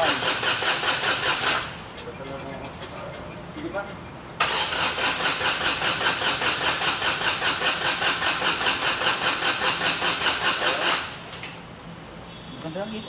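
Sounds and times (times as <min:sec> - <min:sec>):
diesel engine cranking: 0:00.0 - 0:11.8.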